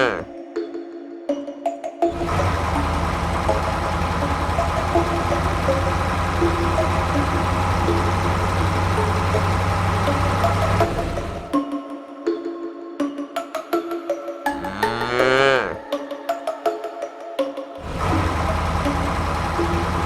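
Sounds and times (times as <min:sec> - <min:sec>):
small motor humming: 0:02.1 - 0:11.6, 0:17.8 - 0:20.0.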